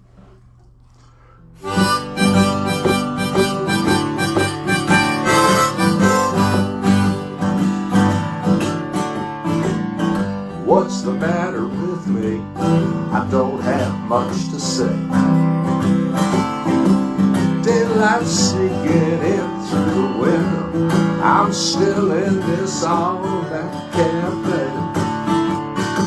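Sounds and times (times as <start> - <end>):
harmonica: 1.6 - 8.8, 12.6 - 26.0
strummed acoustic guitar: 1.6 - 26.0.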